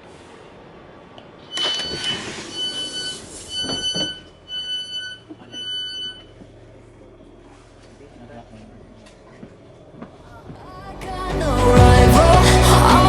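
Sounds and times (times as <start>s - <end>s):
door warning beeps: 1.5s - 6.4s.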